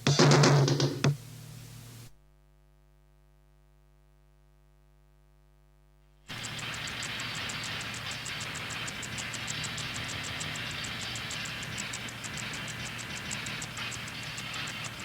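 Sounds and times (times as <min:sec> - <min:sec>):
static hiss: 0:00.0 - 0:02.2, 0:06.2 - 0:15.0
fast even ticking: 0:06.3 - 0:15.0
harsh electronic noise music: 0:06.3 - 0:15.0.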